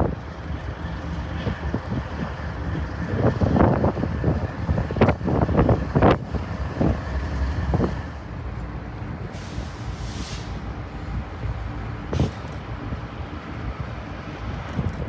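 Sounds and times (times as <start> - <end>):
freight train rumbling: 0.0 - 15.0
brief hiss: 9.3 - 10.6.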